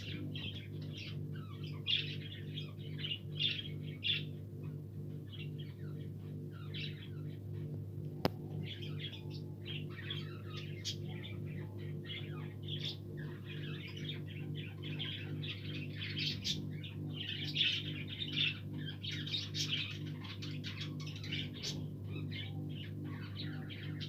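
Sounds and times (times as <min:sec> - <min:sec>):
steady low hum: 0:00.0 - 0:24.0
budgerigars chattering: 0:08.6 - 0:24.0.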